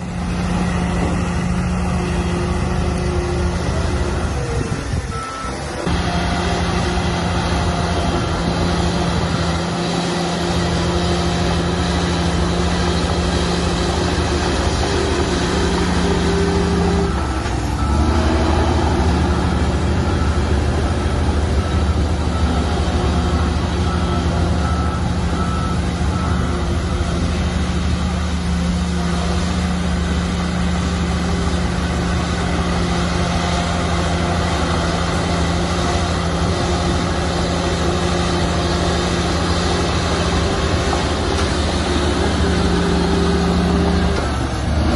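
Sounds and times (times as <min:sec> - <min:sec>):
diesel machinery droning: 0:00.0 - 0:44.9
reversing alarm beeping: 0:01.1 - 0:28.5.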